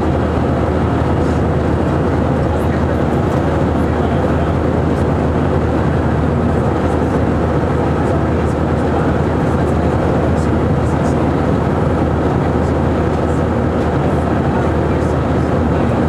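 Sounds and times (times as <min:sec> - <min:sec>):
airplane cabin engine drone: 0:00.0 - 0:16.0
constant low hum: 0:00.0 - 0:16.0.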